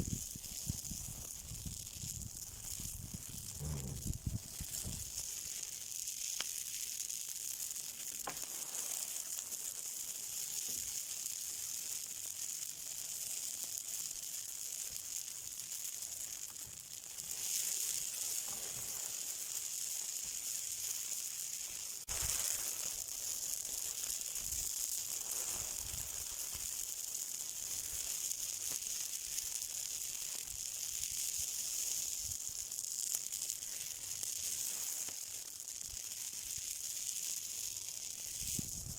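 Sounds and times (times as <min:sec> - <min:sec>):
fire hissing and sizzling: 0:00.0 - 0:38.9
small crackles and pops: 0:00.0 - 0:38.9
sharp crack: 0:08.2 - 0:08.6.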